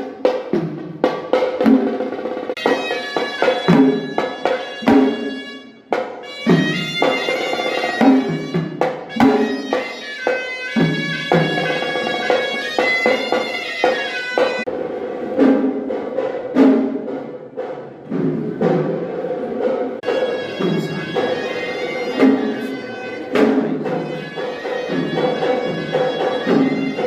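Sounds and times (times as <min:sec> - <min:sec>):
drums beaten irregularly: 0:00.0 - 0:27.0
shrill reedy wind instrument melody: 0:02.6 - 0:14.7, 0:20.0 - 0:27.0.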